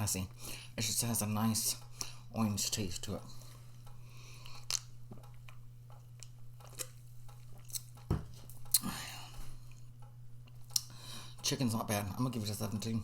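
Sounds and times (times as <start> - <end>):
steady low hum: 0.0 - 13.0
person chewing food: 3.4 - 11.0.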